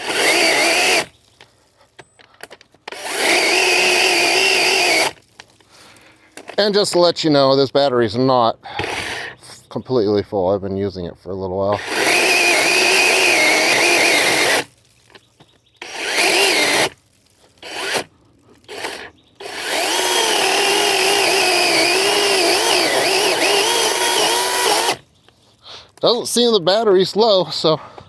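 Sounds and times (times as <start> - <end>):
chainsaw cutting a branch: 0.0 - 1.2, 2.9 - 5.2, 8.8 - 9.3, 11.8 - 14.7, 15.8 - 25.0.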